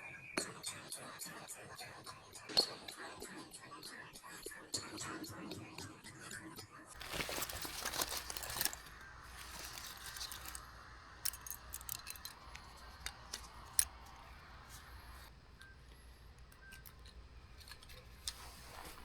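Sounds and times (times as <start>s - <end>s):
rustling: 7.0s - 19.0s
small objects clicking and tapping: 7.0s - 19.0s.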